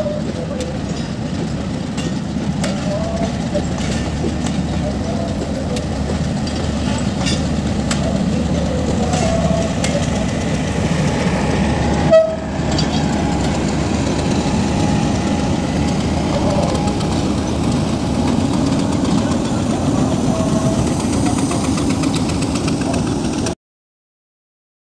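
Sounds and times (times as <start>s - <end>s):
train rumbling and clattering on rails: 0.0s - 23.6s.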